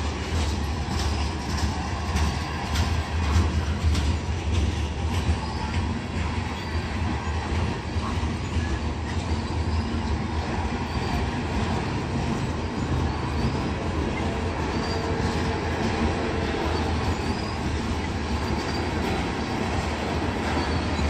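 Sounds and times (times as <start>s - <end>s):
train wheels rumbling on rails: 0.0s - 21.0s
high-pitched wheel squeals: 4.7s - 21.0s.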